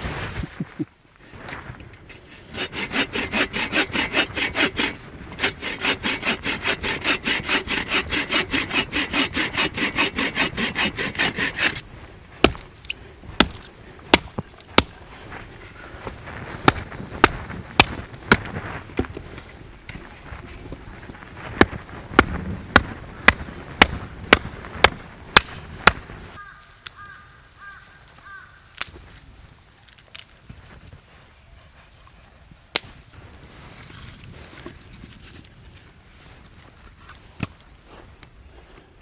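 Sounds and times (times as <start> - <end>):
hand saw cutting branch: 2.1 - 11.8
sharp wood cracks: 12.4 - 15.1, 16.6 - 19.4, 21.5 - 29.2, 29.8 - 30.4.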